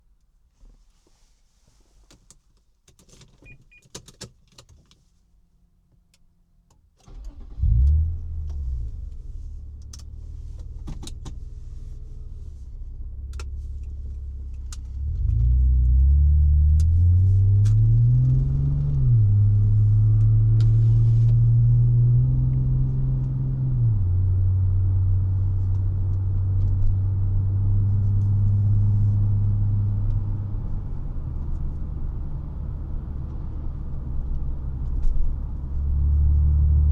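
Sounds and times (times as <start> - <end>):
car engine starting and idling: 7.0 - 36.9.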